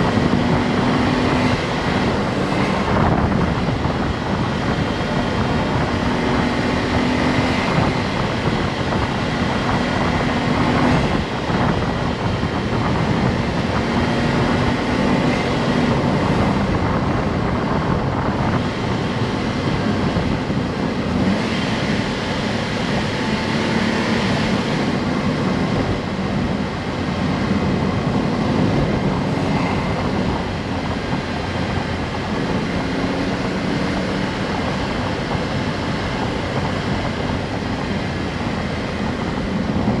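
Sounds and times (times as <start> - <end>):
car engine running: 0.0 - 40.0
road and wind noise: 0.0 - 40.0.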